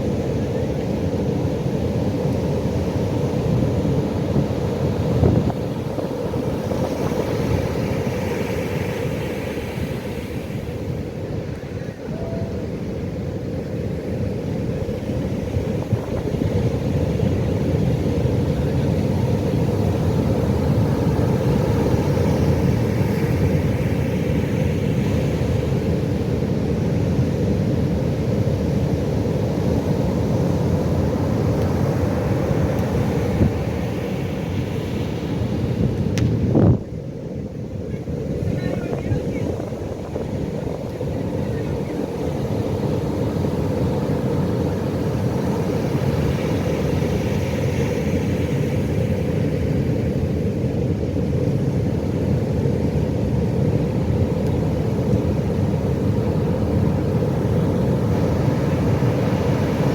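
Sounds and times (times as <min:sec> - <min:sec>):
ocean waves breaking: 0:00.0 - 0:50.6, 0:51.3 - 0:59.9.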